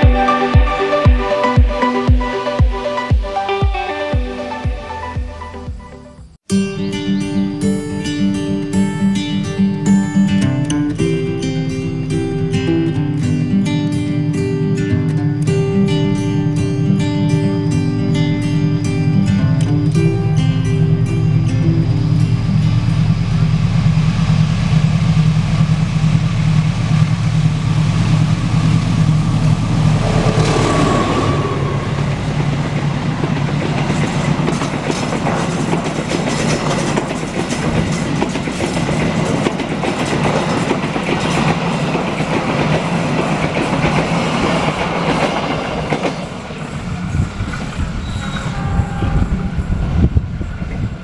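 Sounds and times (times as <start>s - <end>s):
diesel locomotive engine: 0.0s - 6.5s, 10.6s - 51.0s
train wheels clickety-clack: 24.7s - 46.7s.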